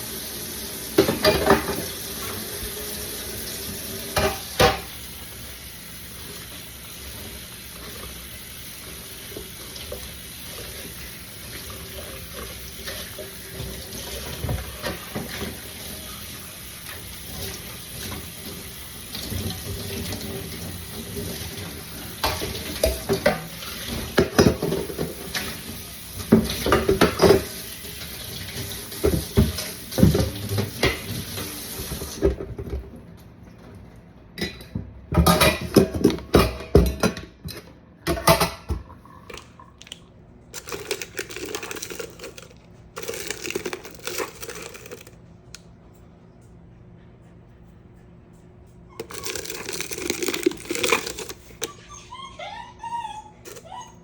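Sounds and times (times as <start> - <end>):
tap water running into sink: 0.0 - 32.5.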